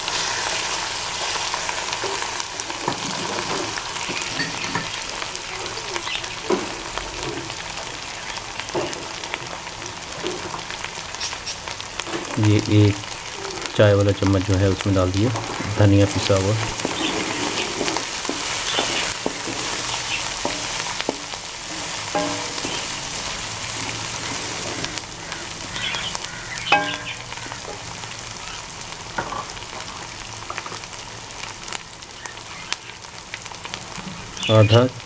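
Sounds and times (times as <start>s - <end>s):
food sizzling in hot oil: 0.0s - 35.0s
wooden spatula scraping a pan: 15.3s - 25.7s.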